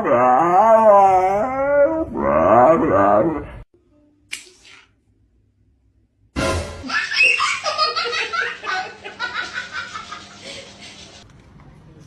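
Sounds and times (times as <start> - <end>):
music: 6.4 - 6.9
people laughing: 6.8 - 11.2.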